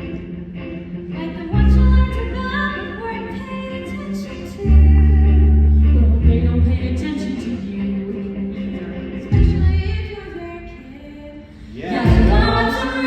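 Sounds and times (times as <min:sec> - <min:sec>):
singing with instrumental music: 0:00.0 - 0:13.0
deep held bass notes: 0:01.5 - 0:02.4, 0:04.6 - 0:07.1, 0:09.4 - 0:10.0, 0:12.0 - 0:13.0.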